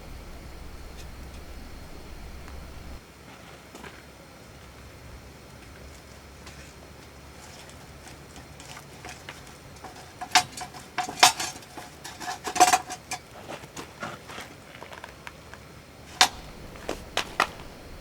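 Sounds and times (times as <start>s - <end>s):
metal tableware clinking: 8.6s - 13.2s.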